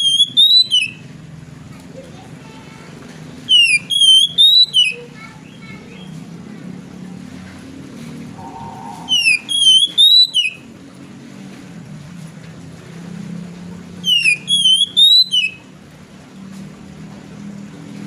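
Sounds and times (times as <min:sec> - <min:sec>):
bird whistled song: 0:00.0 - 0:01.1, 0:03.4 - 0:06.1, 0:08.4 - 0:10.7, 0:14.0 - 0:15.7
low steady hum: 0:00.0 - 0:18.0.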